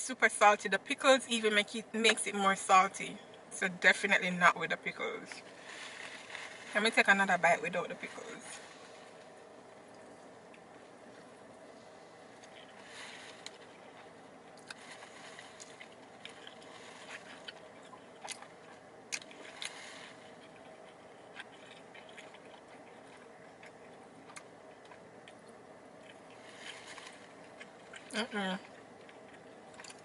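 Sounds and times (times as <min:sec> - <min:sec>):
person chewing: 0:13.4 - 0:14.9, 0:15.5 - 0:30.0.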